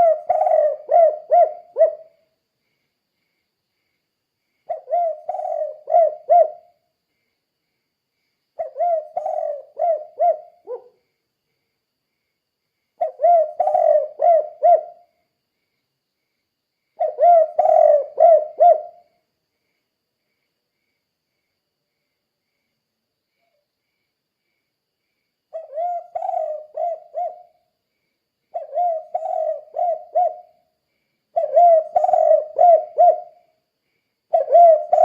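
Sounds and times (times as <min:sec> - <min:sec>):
dove cooing: 0:00.0 - 0:02.2, 0:04.7 - 0:06.8, 0:08.6 - 0:11.0, 0:13.0 - 0:15.1, 0:17.0 - 0:19.1, 0:25.5 - 0:27.6, 0:28.5 - 0:30.6, 0:31.3 - 0:33.5, 0:34.3 - 0:35.0.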